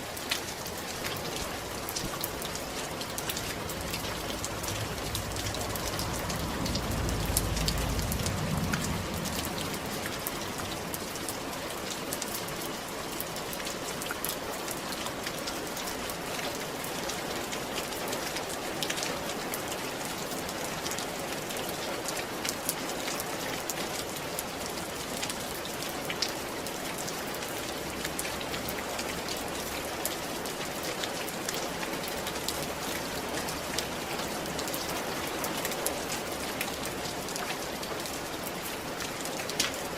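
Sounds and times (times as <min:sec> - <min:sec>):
rain falling on a roof: 0:00.0 - 0:39.9
low rumble: 0:03.4 - 0:11.0.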